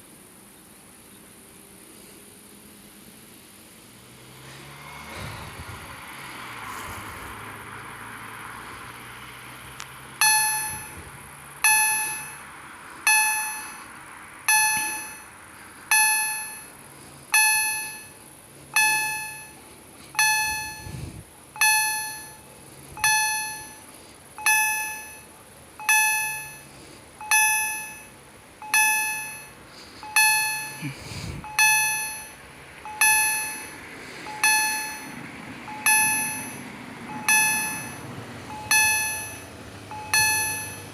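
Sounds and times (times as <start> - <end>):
level crossing warning bell: 10.1 - 40.9.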